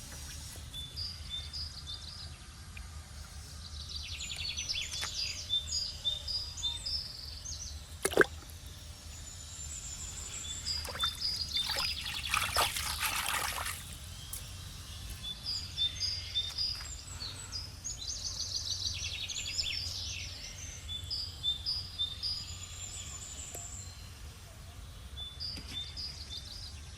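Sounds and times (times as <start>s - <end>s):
birds singing: 0.2s - 26.9s
water splashing: 8.0s - 8.5s, 10.7s - 14.0s.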